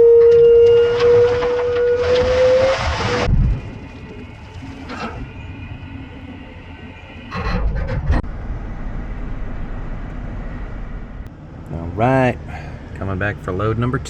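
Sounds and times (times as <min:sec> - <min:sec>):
truck engine and road rumble: 0:00.0 - 0:14.0
trailer clattering rattle: 0:00.3 - 0:11.3.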